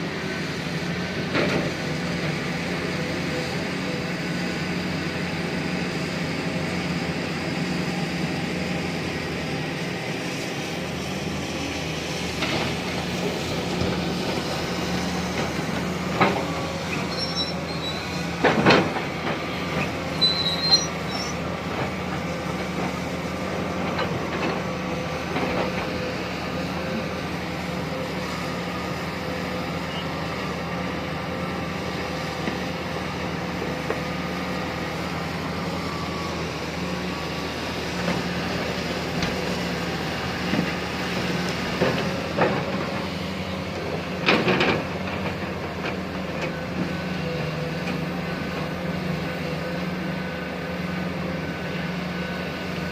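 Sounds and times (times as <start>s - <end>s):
excavator diesel engine running: 0.0s - 52.9s
brief high squeaks: 16.9s - 18.2s, 20.2s - 21.4s.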